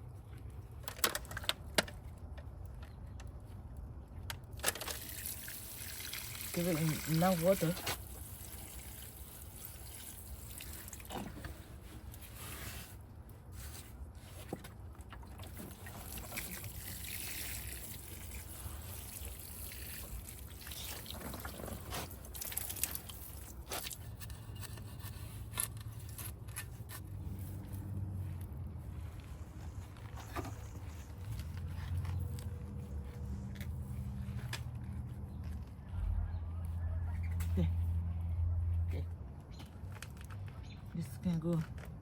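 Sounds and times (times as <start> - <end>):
water pouring onto soil: 4.7 - 11.4, 15.4 - 24.0.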